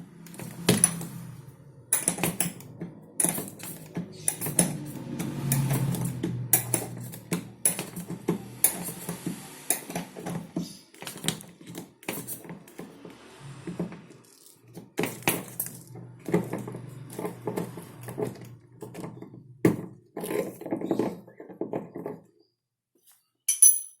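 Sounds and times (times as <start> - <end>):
hard objects clicking and clattering: 1.9 - 12.9.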